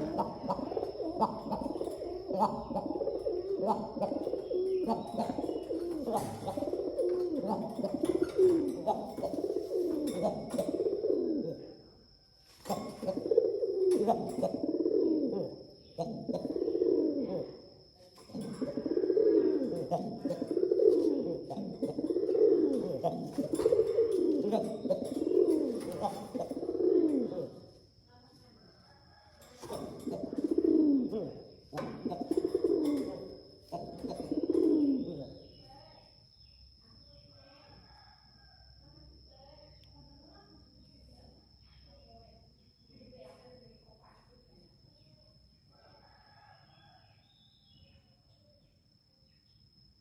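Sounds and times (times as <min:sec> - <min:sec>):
pigeons cooing: 0:00.0 - 0:11.7, 0:12.5 - 0:27.8, 0:29.4 - 0:35.6.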